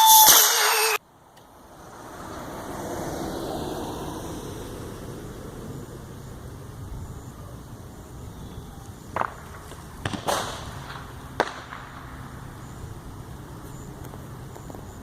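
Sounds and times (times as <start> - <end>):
sharp cracks: 9.1 - 12.6.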